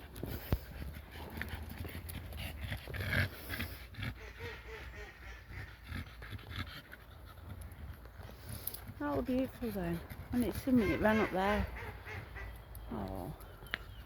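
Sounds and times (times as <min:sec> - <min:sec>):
dog snuffling and panting: 0:05.5 - 0:11.5.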